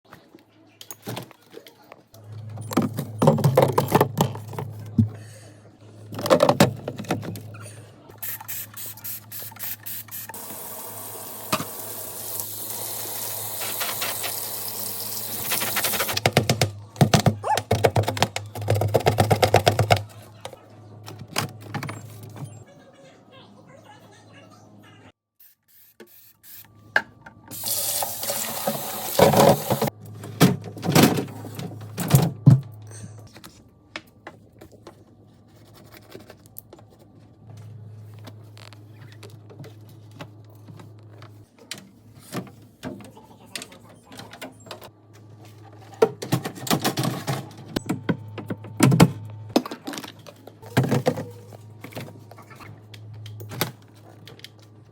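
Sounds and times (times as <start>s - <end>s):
containers and shelves clattering: 0.8s - 5.4s, 6.0s - 7.9s, 15.4s - 22.6s, 27.0s - 33.6s, 39.0s - 54.7s.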